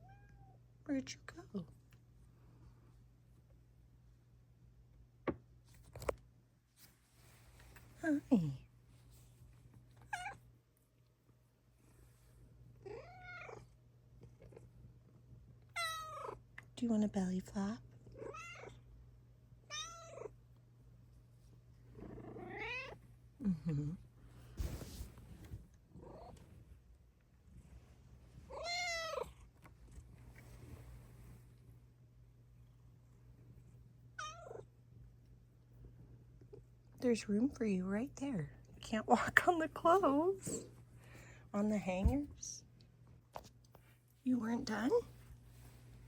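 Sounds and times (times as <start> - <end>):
cat meowing: 0.0 - 0.6, 12.9 - 13.6, 15.8 - 16.4, 18.2 - 18.8, 19.7 - 20.3, 28.5 - 29.3, 34.2 - 34.6.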